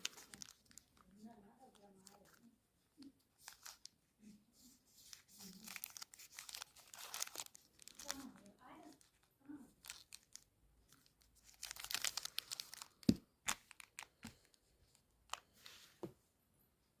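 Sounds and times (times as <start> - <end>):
wrapper crinkling and tearing: 0.0 - 2.4, 3.0 - 3.9, 4.6 - 14.6.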